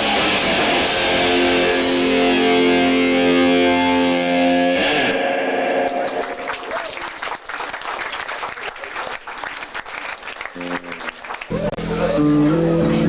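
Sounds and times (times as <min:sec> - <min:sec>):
distorted electric guitar chord: 0:00.0 - 0:06.4
people clapping: 0:05.5 - 0:13.0.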